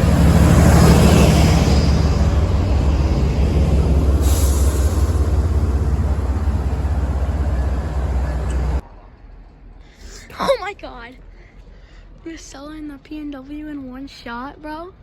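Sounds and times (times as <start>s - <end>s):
diesel train engine drone: 0.0s - 9.0s
rail and wheel noise: 0.0s - 10.0s.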